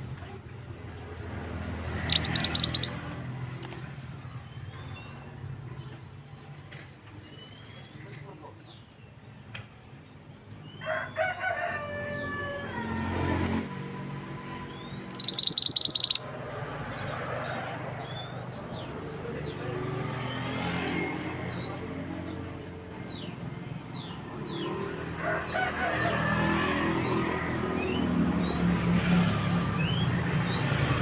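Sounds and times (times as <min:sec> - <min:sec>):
bird trilling: 0:01.9 - 0:03.0, 0:14.8 - 0:16.3
thin bird chirps sliding down: 0:02.0 - 0:03.0, 0:15.1 - 0:16.3.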